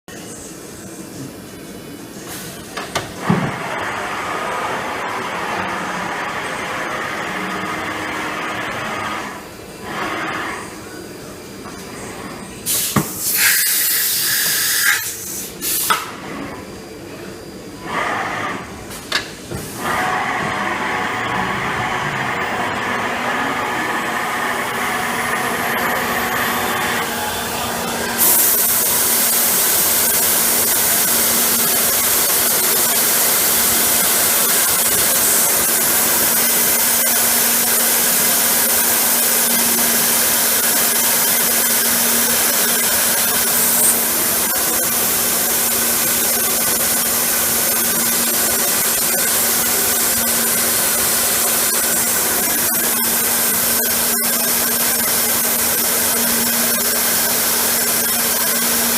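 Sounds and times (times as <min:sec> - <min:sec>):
loud hiss: 0:12.6 - 0:16.0
milling machine humming: 0:19.8 - 0:58.9.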